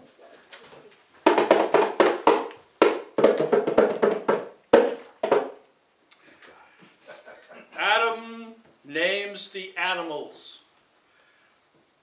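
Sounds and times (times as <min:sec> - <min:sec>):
bongos played by hand: 0:01.2 - 0:05.6.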